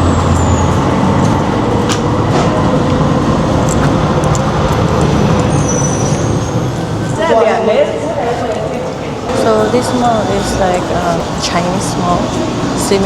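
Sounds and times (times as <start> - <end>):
vehicle engine rumble: 0.0 - 7.2.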